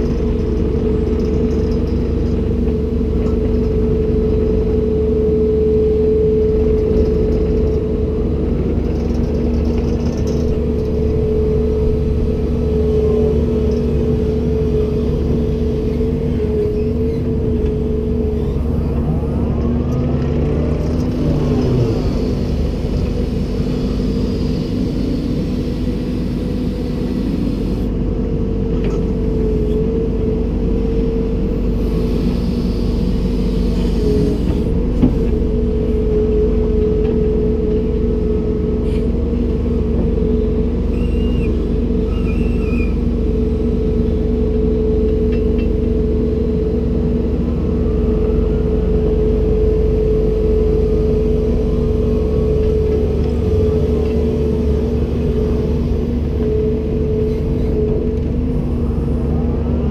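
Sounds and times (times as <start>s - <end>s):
constant whine: 0.0s - 59.9s
excavator engine drone: 0.0s - 59.9s.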